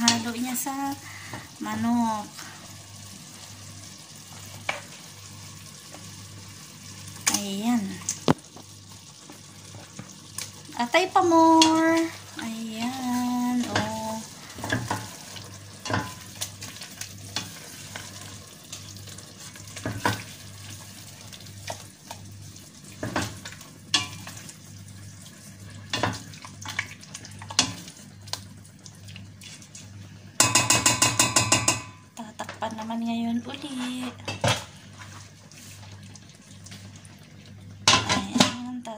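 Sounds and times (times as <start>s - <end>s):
meat frying with light sizzle: 0.0s - 38.9s
utensil clinking and scraping pot: 15.8s - 16.4s, 23.0s - 24.4s
rapid metal strikes on pot: 30.4s - 32.0s.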